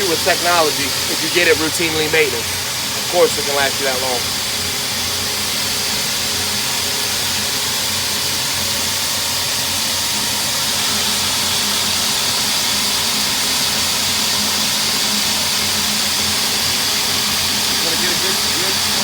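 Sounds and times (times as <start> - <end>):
water spray hissing: 0.0 - 4.4.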